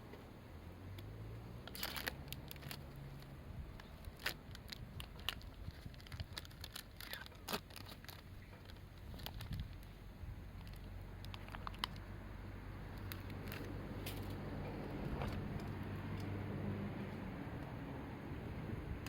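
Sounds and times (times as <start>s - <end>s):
campfire crackling: 1.6s - 16.4s.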